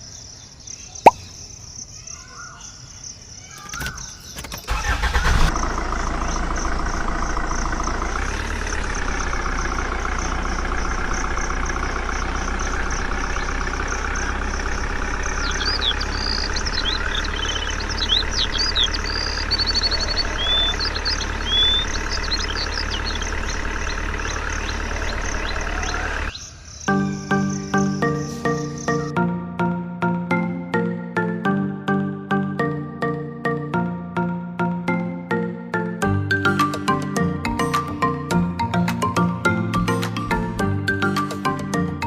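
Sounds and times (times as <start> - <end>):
birds chirping: 0.0 - 29.1
engine idling: 4.7 - 26.4.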